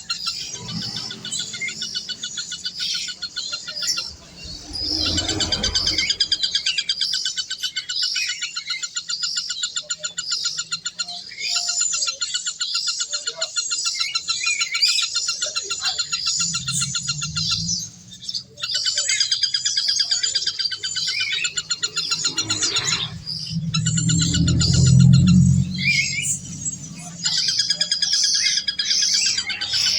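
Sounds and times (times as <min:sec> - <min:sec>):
birds chirping: 0:00.0 - 0:29.9
low rumble: 0:04.0 - 0:06.9, 0:15.8 - 0:18.5, 0:21.6 - 0:27.8.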